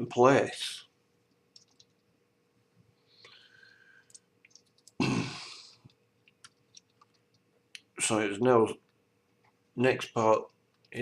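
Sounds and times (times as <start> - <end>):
person sighing: 5.0 - 5.7.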